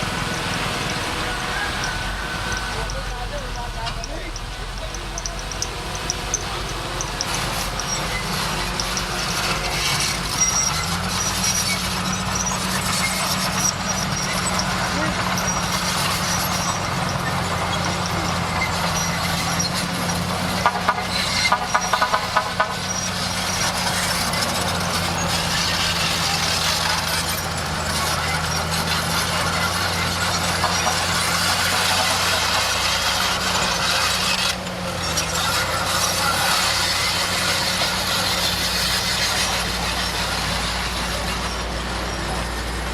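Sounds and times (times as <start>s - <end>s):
bulldozer diesel engine running: 0.0s - 42.9s
rapid clanking: 0.0s - 42.9s.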